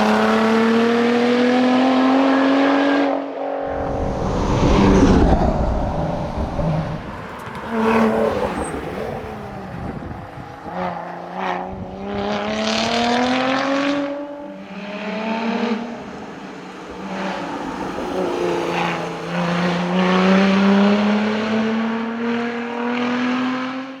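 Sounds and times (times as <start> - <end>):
car engine accelerating hard: 0.0 - 24.0.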